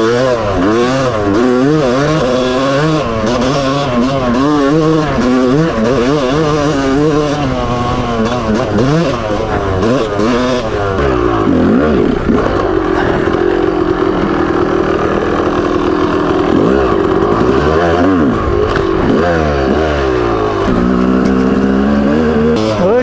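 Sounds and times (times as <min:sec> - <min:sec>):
two-stroke dirt bike engine revving: 0:00.0 - 0:23.0.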